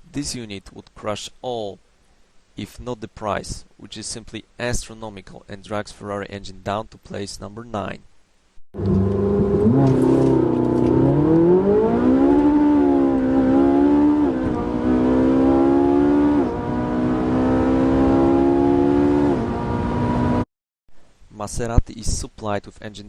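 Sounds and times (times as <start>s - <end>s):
sports car engine accelerating: 8.8s - 20.4s.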